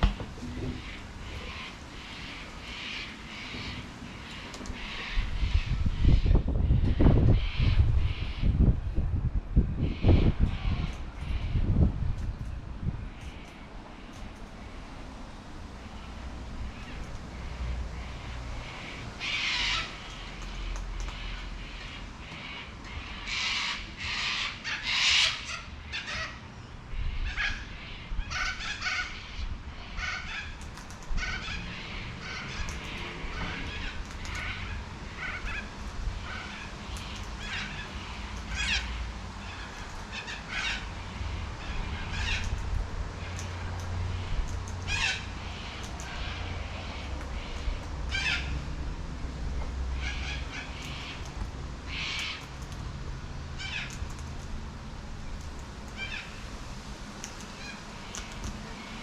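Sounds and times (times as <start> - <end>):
low steady rumble: 0.0 - 59.0
cockatoo harsh calls: 0.5 - 8.6, 16.0 - 48.8, 49.9 - 52.6, 53.6 - 54.1, 56.0 - 56.4.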